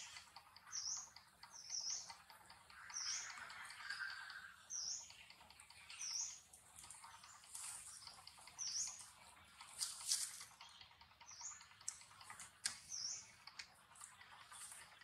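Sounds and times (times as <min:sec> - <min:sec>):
bird high chirp: 0:00.0 - 0:06.5, 0:07.2 - 0:09.2
faint outdoor hiss: 0:00.0 - 0:15.0.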